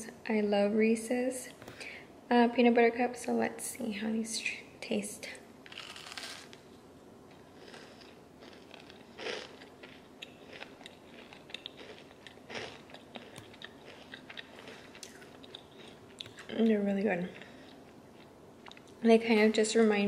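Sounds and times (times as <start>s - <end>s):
person chewing cookie: 5.7s - 6.6s, 7.3s - 19.0s.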